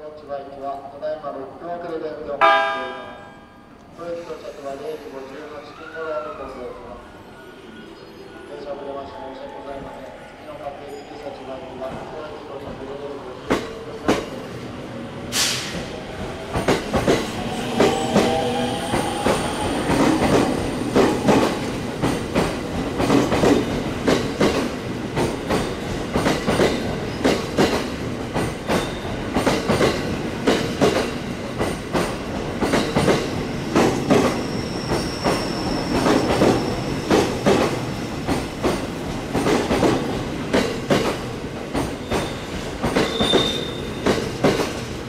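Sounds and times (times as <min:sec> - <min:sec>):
high wheel squeal: 0:34.3 - 0:37.2, 0:42.0 - 0:44.0.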